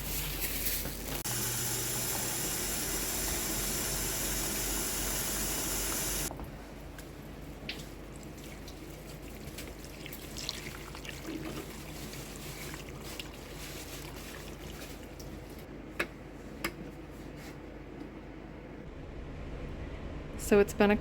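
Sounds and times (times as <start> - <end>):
water pouring into a pot: 1.3 - 6.3, 8.2 - 13.4.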